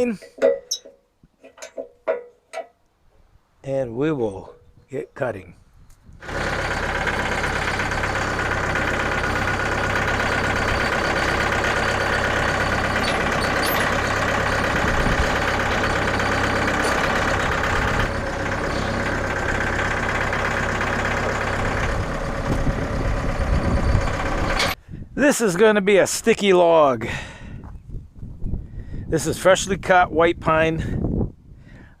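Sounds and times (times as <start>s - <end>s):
engine running: 6.2s - 24.8s.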